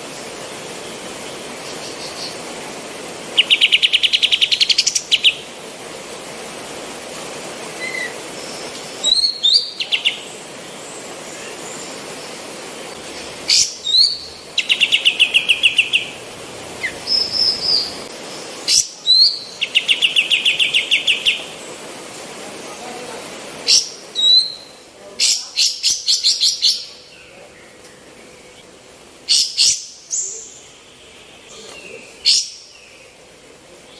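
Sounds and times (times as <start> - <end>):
steady background hiss: 0.0 - 33.9
bulbul singing with trills: 3.3 - 5.5, 13.0 - 21.6.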